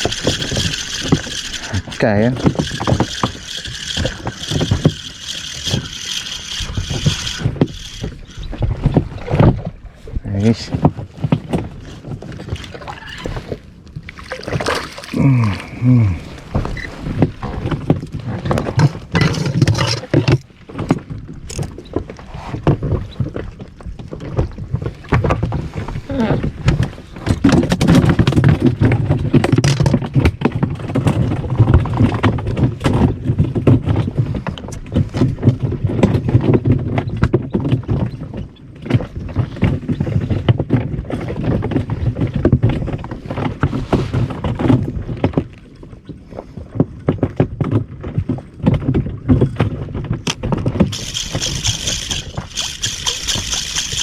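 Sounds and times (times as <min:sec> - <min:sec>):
water slapping against boat hull: 0:10.6 - 0:15.2.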